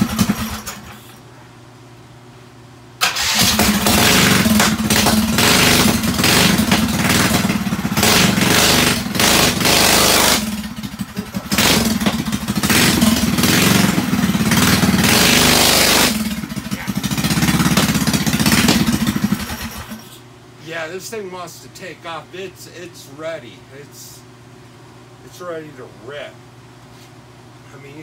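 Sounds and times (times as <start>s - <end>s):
mini bike engine revving: 0.0s - 1.0s, 3.0s - 20.0s.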